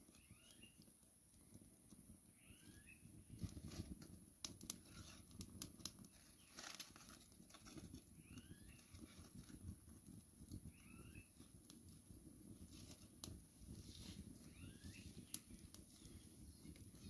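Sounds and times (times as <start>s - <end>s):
bird whistled call: 0.2s - 0.8s, 2.4s - 3.0s, 10.7s - 11.3s, 14.5s - 15.2s
faint clicks and crackles: 3.3s - 17.0s.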